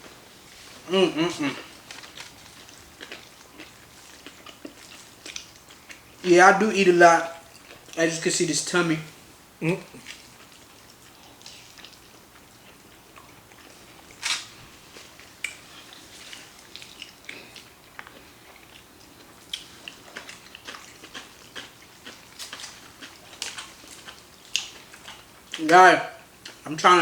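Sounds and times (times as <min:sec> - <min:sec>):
chewing and slurping noodles: 0:01.6 - 0:06.0, 0:10.0 - 0:25.6.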